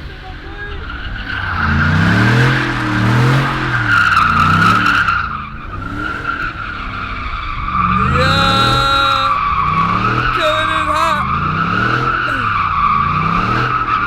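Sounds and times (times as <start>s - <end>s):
tires squealing: 0.1s - 8.8s.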